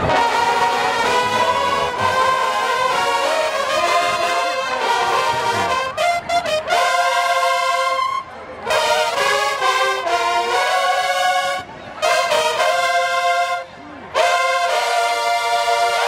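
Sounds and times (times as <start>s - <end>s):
brass band playing a fanfare: 0.0s - 16.0s.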